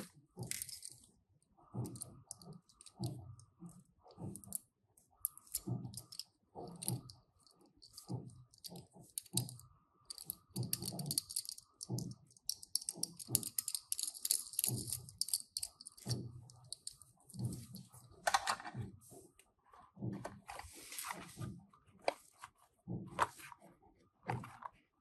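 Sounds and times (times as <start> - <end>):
toy cars clicking and rattling: 0.0 - 1.1, 5.3 - 18.6
scrape: 20.5 - 22.5.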